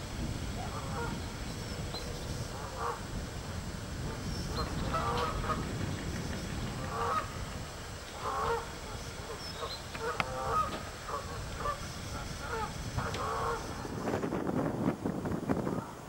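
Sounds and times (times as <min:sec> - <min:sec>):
geese honking: 0:00.6 - 0:01.2, 0:02.5 - 0:03.2, 0:04.0 - 0:05.7, 0:06.7 - 0:07.4, 0:08.1 - 0:14.0.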